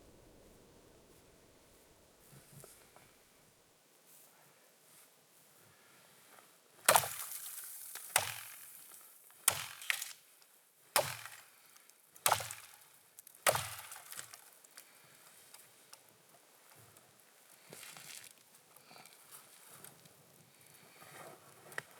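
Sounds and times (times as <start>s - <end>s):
axe chopping wood: 6.9s - 7.4s, 8.0s - 8.7s, 9.5s - 10.1s, 11.0s - 11.4s, 12.2s - 12.8s, 13.4s - 14.4s.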